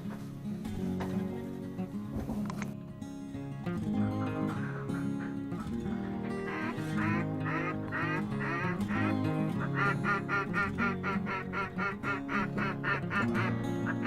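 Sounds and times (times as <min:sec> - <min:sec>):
background music: 0:00.0 - 0:14.0
duck quacking: 0:04.0 - 0:14.0.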